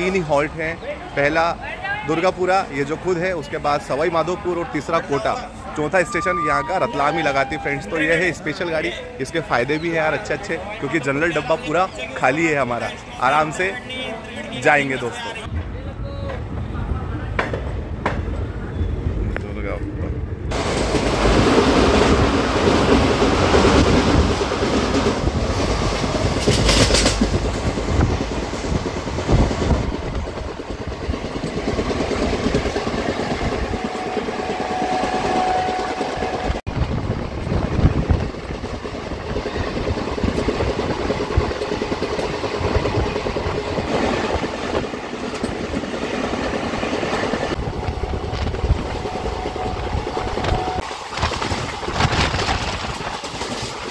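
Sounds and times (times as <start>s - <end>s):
train coach rumble and rattle: 15.5s - 53.9s
wheels clattering on rails: 20.0s - 53.9s.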